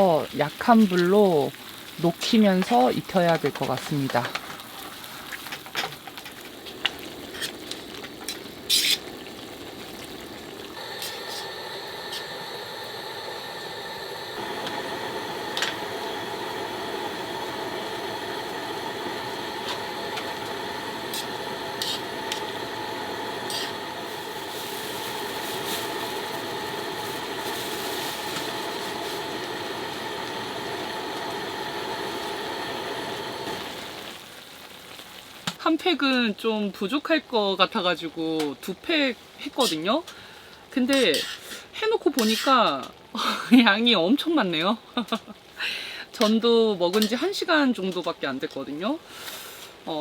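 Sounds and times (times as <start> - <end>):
meat sizzling in a pan: 0.0 - 35.7
steady hum: 10.8 - 34.0.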